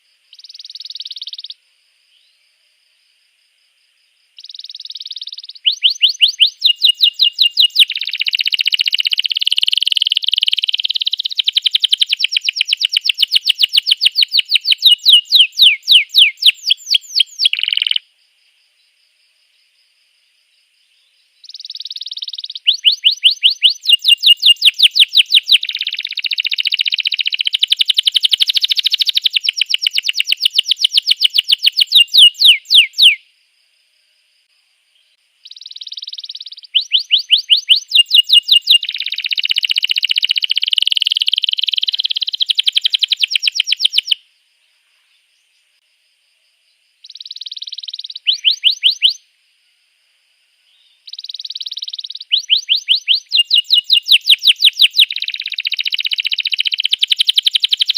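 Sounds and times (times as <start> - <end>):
canary singing: 0.3 - 1.6, 4.4 - 18.0, 21.4 - 33.2, 35.4 - 44.2, 47.1 - 49.2, 51.1 - 57.9.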